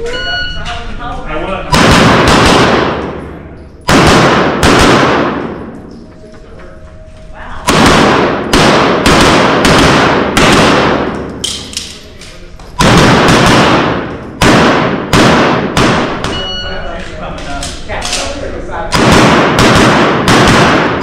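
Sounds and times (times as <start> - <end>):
pistol shots with ringing decay: 1.7 - 5.8, 7.6 - 11.8, 12.8 - 16.4, 18.9 - 21.0.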